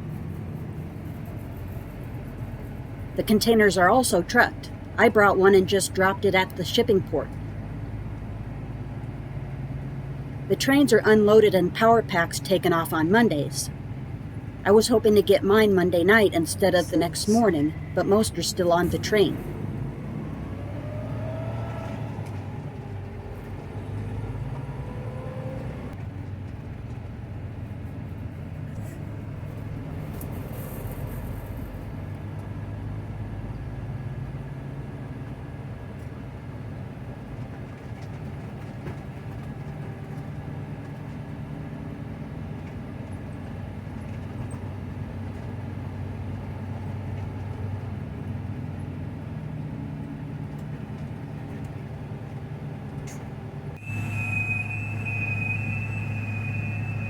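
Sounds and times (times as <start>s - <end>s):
diesel engine droning: 0.0s - 57.0s
faint rising squeals: 16.9s - 26.0s, 53.8s - 57.0s.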